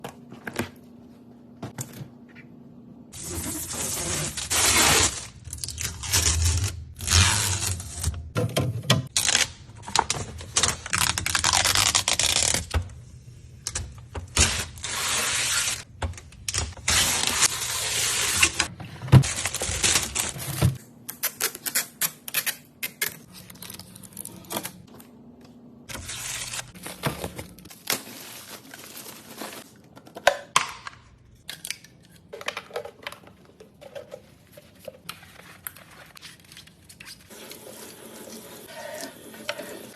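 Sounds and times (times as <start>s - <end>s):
plastic packaging crinkling and tearing: 9.1s - 12.6s, 25.9s - 29.8s.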